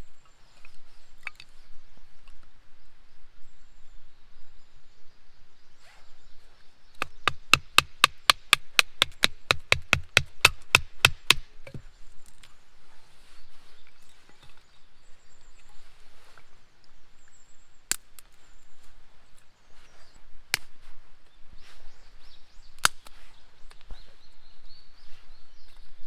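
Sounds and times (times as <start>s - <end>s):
fast sharp knocks: 7.0s - 11.8s.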